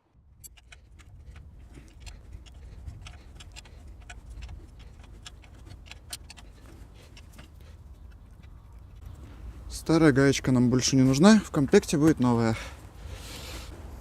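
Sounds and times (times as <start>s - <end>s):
ratcheting wrench clicking: 0.4s - 6.4s.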